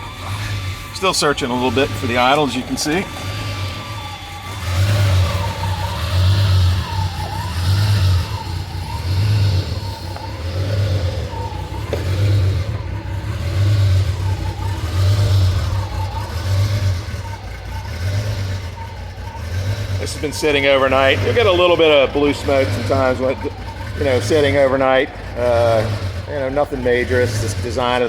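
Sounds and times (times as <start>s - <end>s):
car engine hunting at idle: 0.0s - 28.0s.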